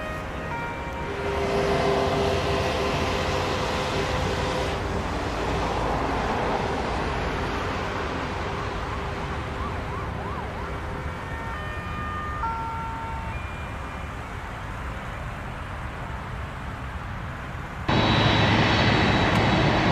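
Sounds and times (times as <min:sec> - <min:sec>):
jet airliner engine noise: 0:17.7 - 0:19.9.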